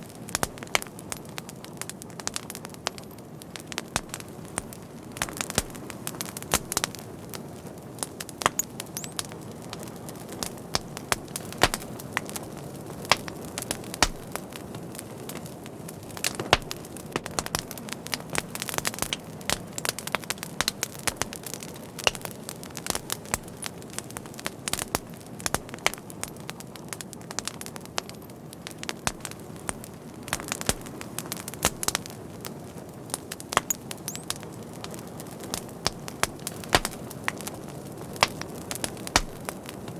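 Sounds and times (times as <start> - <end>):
wood fire crackling: 0.0 - 39.9
flame rushing: 10.2 - 19.3, 33.3 - 39.9.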